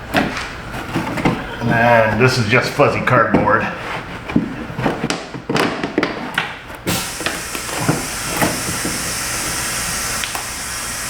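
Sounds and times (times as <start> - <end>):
plastic parts clicking and knocking: 4.3 - 8.9
steady hiss: 6.9 - 11.0.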